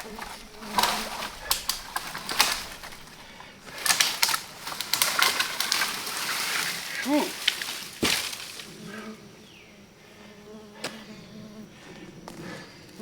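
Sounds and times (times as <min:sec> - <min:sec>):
dry branches crackling and snapping: 0:00.0 - 0:09.1
brush rustling: 0:00.0 - 0:09.7.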